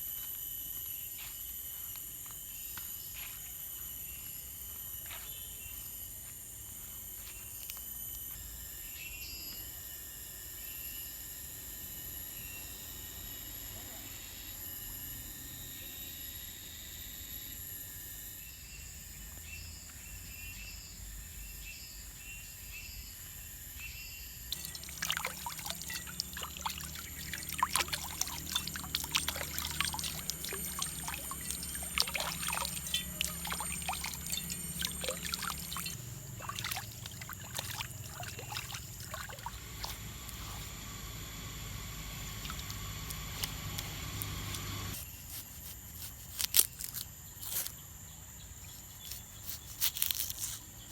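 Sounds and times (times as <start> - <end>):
insects trilling: 0.0 - 40.8, 41.6 - 50.9
crackling and splashing: 24.5 - 40.7, 42.2 - 44.3.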